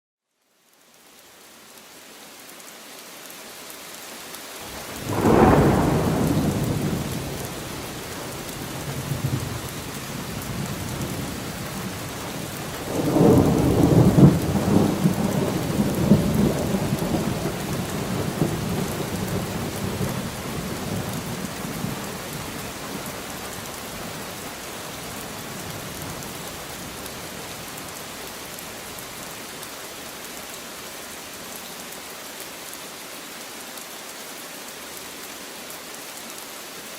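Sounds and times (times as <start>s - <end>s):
rain falling on leaves: 0.2s - 36.9s
thunder: 4.9s - 8.1s, 12.8s - 22.0s.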